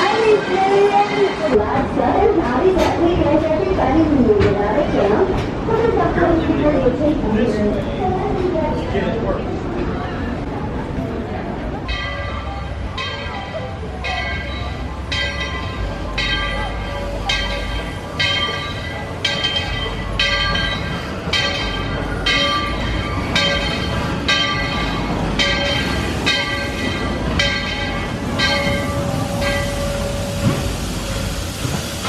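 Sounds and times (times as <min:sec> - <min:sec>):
steam locomotive bell ringing: 0:00.0 - 0:02.8, 0:11.8 - 0:31.8
low rumble of train: 0:00.0 - 0:32.0.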